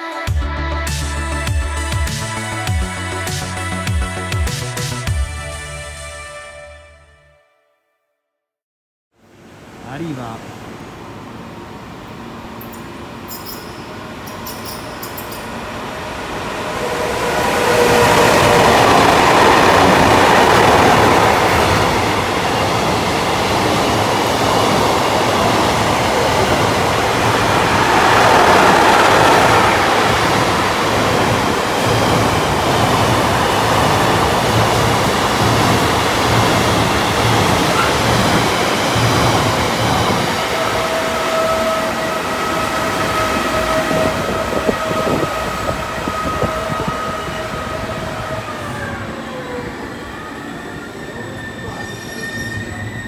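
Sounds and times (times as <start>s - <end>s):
passenger train on rails: 9.2s - 53.0s
two-tone whine: 12.0s - 53.0s.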